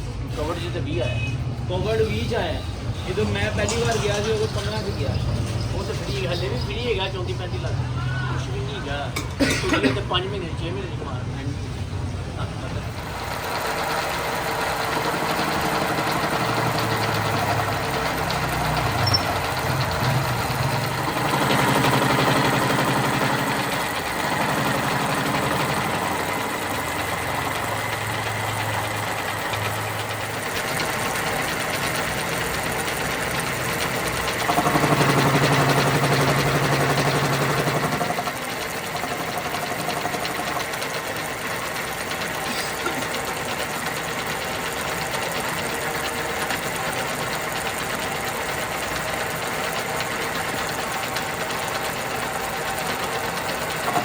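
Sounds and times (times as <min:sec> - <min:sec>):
motor humming: 0:11.6 - 0:54.0.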